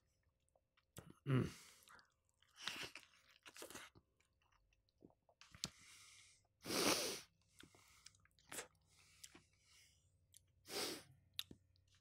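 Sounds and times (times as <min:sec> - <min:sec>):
close chewing of fried chicken: 0:01.8 - 0:05.8.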